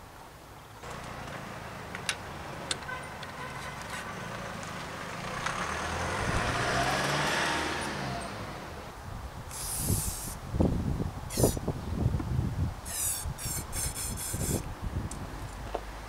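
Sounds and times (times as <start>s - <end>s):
vehicle passing by: 4.0s - 9.0s.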